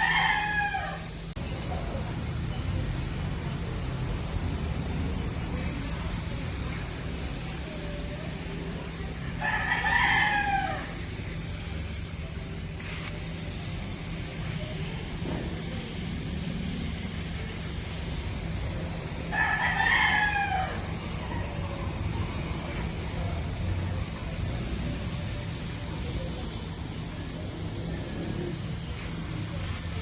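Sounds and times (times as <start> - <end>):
rooster crowing: 0.0 - 1.2, 9.2 - 11.4, 19.2 - 22.0.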